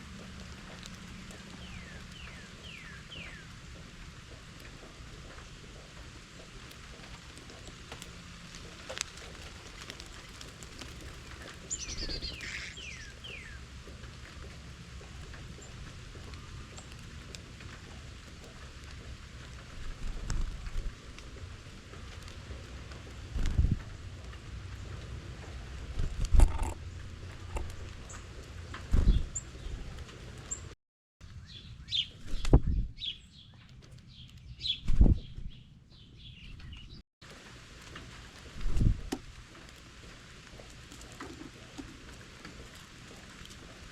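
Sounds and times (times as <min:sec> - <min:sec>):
small birds chirping: 0:00.0 - 0:21.4, 0:26.5 - 0:37.0
steady outdoor hiss: 0:00.0 - 0:32.3, 0:37.2 - 0:43.9.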